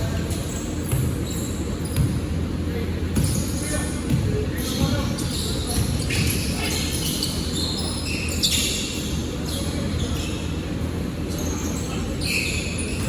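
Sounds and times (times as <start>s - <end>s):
ball bouncing on court: 0.0s - 2.4s, 3.1s - 6.4s.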